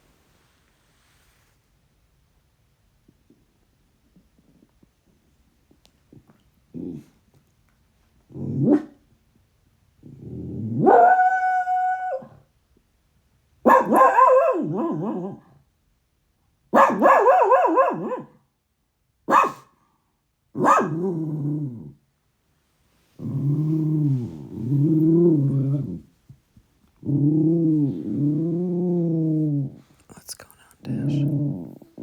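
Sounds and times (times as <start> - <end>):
dog growling: 6.1 - 7.2, 8.3 - 8.9, 10.0 - 11.2, 20.9 - 22.0, 23.2 - 26.1, 27.0 - 30.0, 31.0 - 32.0.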